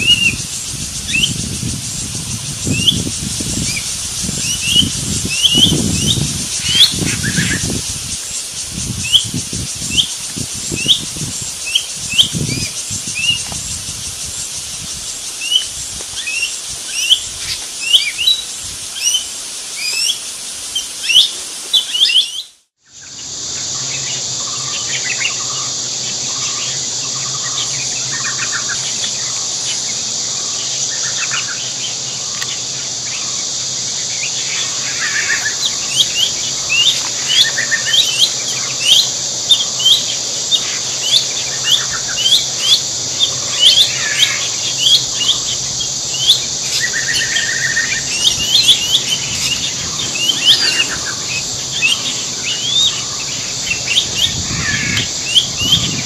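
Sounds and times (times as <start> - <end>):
birds chirping: 0.0 - 20.2, 34.1 - 56.0
high insect-like hiss: 0.0 - 56.0.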